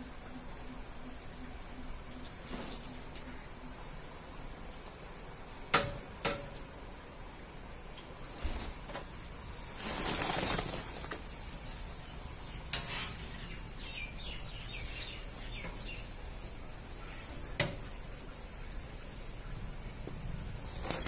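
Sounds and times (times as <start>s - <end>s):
small birds chirping: 9.8s - 21.0s.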